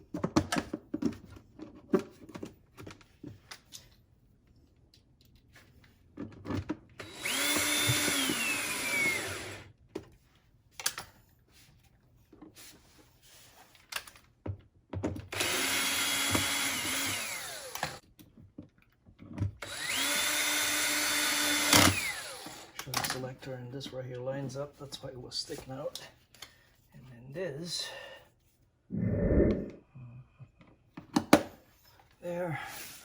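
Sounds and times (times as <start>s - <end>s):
power drill motor: 7.0s - 9.7s, 15.3s - 18.0s, 19.6s - 22.8s.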